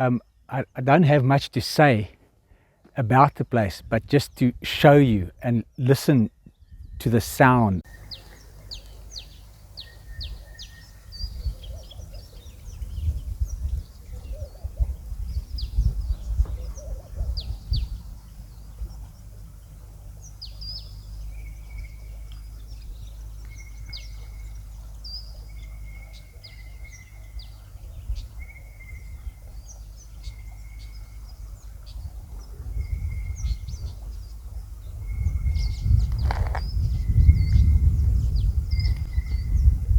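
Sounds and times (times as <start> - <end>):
downward-sweeping bird whistles: 7.9 - 14.6
uneven low rumble: 8.0 - 39.9.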